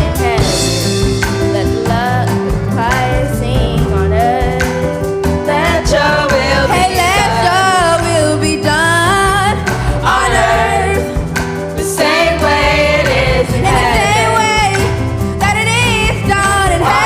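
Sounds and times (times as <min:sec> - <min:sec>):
bass: 0:00.0 - 0:17.0
keyboard: 0:00.0 - 0:17.0
singers singing: 0:05.5 - 0:09.0, 0:09.6 - 0:11.2, 0:11.8 - 0:15.0, 0:16.6 - 0:17.0.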